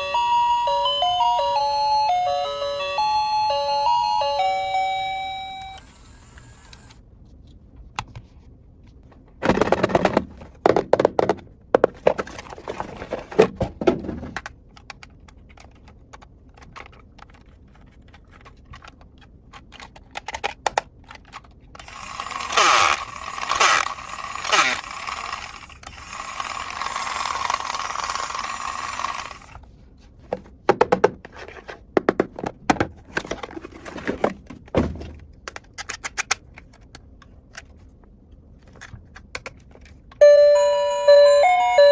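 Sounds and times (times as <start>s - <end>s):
plastic toy pieces clicking: 14.4s - 29.5s, 35.4s - 37.7s.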